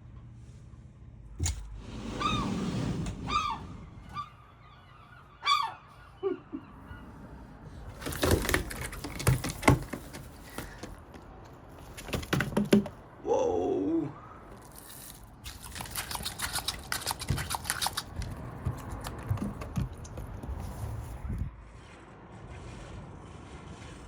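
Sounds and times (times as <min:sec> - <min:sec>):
seagull squawking: 0:03.3 - 0:07.4
sharp clicks and knocks: 0:08.0 - 0:13.0.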